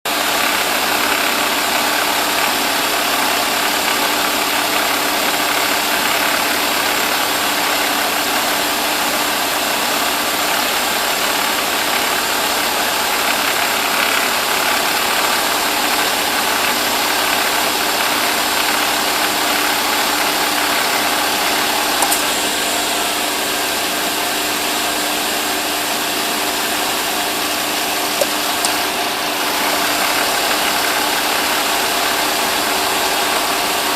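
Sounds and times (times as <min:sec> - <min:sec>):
car engine idling: 0:00.1 - 0:33.9
compressor clutch click: 0:20.9 - 0:22.5.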